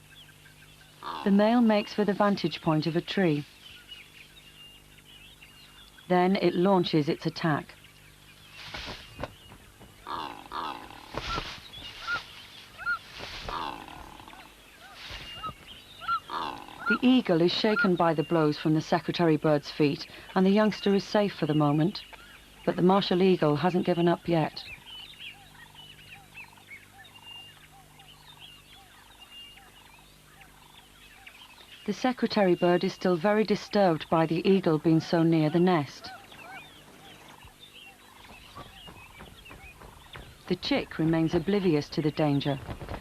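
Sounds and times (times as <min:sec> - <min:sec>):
bird honking croaks: 0:00.0 - 0:03.4, 0:09.0 - 0:18.6, 0:32.4 - 0:43.0
high bird chirps: 0:13.6 - 0:17.0, 0:36.0 - 0:42.7
bird whistle: 0:14.8 - 0:16.3.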